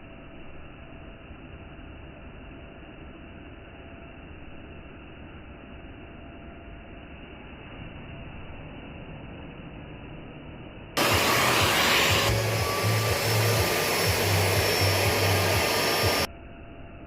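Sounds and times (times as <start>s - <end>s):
low hum: 0.0s - 17.0s
vacuum cleaner motor rushing: 11.0s - 16.3s.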